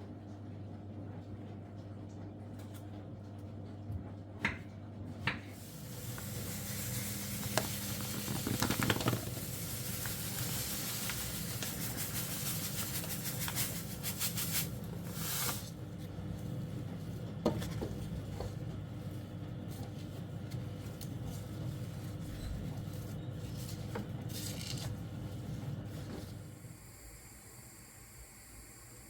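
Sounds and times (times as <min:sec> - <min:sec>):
steady hiss: 0:05.6 - 0:15.8.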